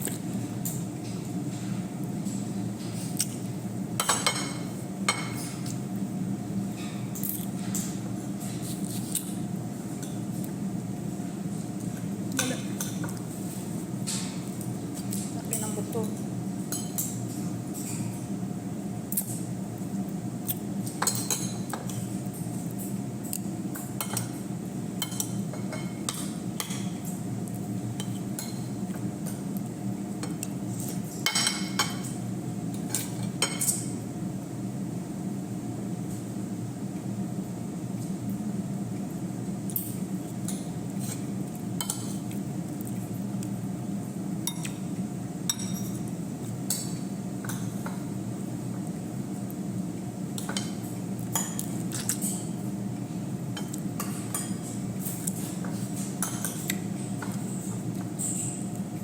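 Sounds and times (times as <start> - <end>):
utensils clinking on dishes: 16.0 - 18.2, 20.8 - 22.0, 32.8 - 34.0, 45.5 - 46.1.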